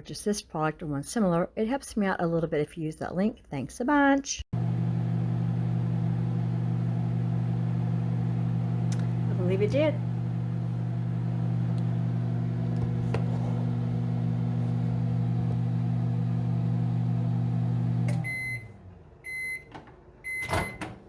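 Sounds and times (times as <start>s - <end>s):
microwave hum: 4.6s - 21.0s
microwave beeps: 14.1s - 21.0s.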